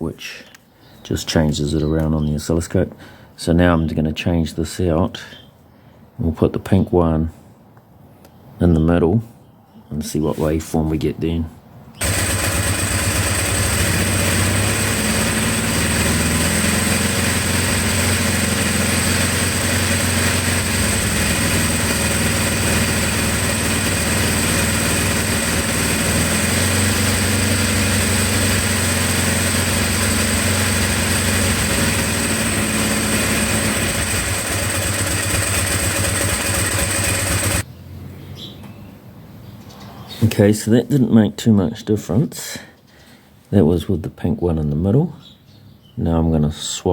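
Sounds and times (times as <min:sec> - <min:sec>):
motorcycle engine idling: 0:12.0 - 0:37.6.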